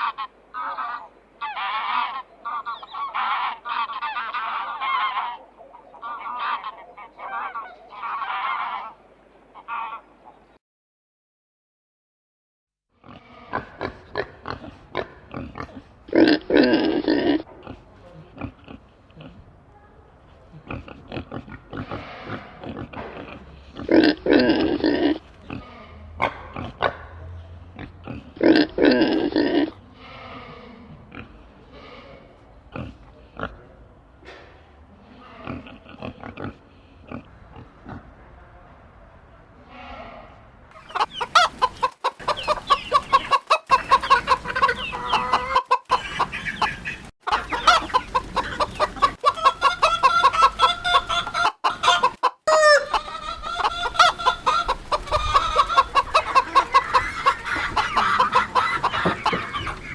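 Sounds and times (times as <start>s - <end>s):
pigs grunting: 13.0s - 19.5s, 20.5s - 33.8s, 35.1s - 38.2s
pigs squealing: 40.8s - 59.9s.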